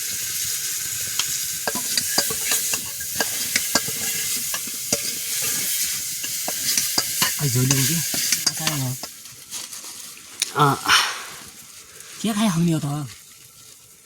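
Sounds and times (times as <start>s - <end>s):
mushrooms sizzling in a pan: 0.0s - 14.0s
utensil tapping and scraping pan: 1.1s - 9.3s.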